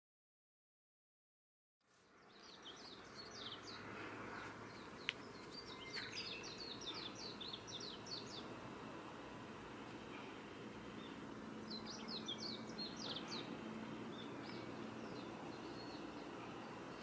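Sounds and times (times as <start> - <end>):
small bird chirping: 1.9 - 8.5, 11.0 - 17.0
low background noise: 1.9 - 17.0.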